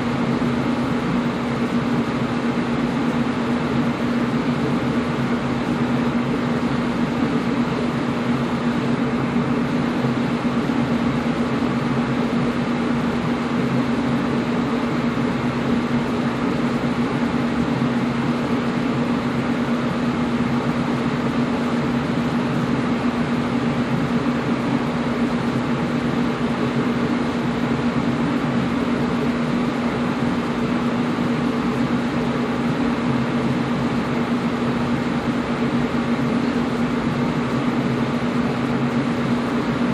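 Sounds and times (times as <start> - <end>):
air conditioner running: 0.0 - 39.9.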